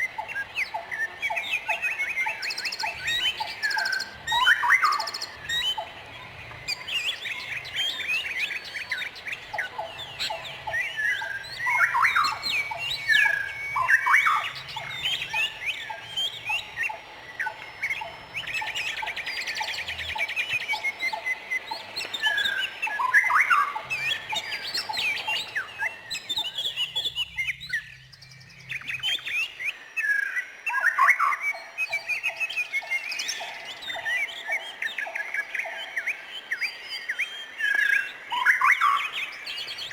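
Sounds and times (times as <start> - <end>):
bird rapid trill: 0.0 - 36.2
songbirds chirping: 0.0 - 39.9.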